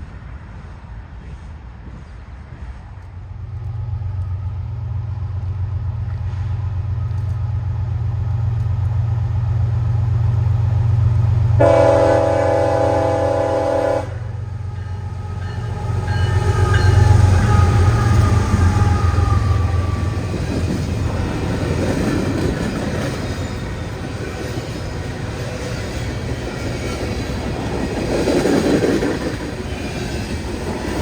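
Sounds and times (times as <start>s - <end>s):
rail noise: 0.0s - 31.0s
locomotive rumbling: 0.2s - 31.0s
train air horn blast: 11.6s - 20.3s.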